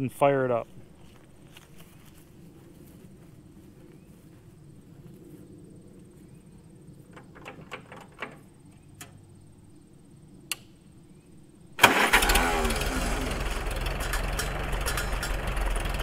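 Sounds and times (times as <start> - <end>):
light clicks and knocks: 7.1 - 9.2
tractor engine running loudly: 11.8 - 16.0.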